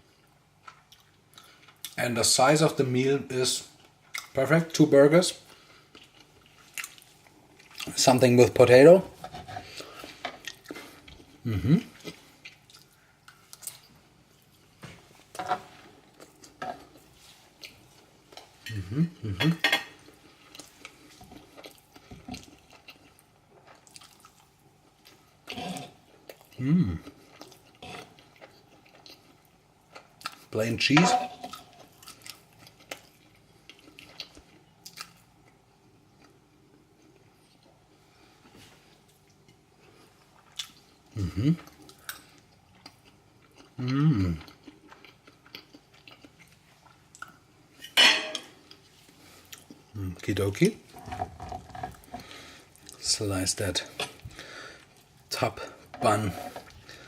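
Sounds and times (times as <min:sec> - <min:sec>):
person chewing food: 0:00.0 - 0:02.0, 0:05.4 - 0:08.0, 0:09.5 - 0:30.5, 0:31.3 - 0:47.8, 0:48.5 - 0:50.0, 0:50.8 - 0:53.0.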